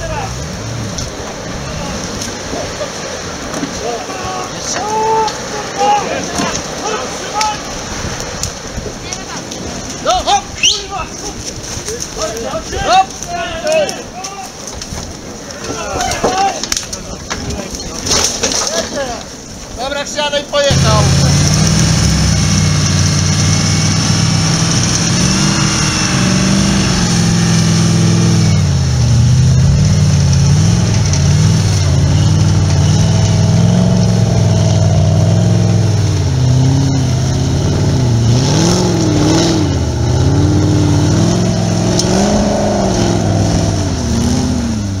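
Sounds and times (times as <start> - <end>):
buggy engine revving: 0.0 - 7.2, 20.7 - 45.0.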